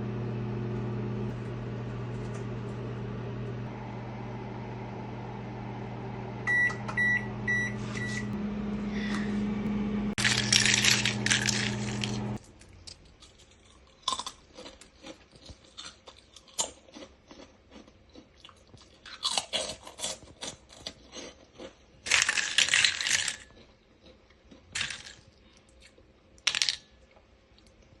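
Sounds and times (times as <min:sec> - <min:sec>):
microwave oven humming: 0:00.0 - 0:12.6
short beeps: 0:06.5 - 0:08.3
crackers crunching: 0:10.2 - 0:27.9.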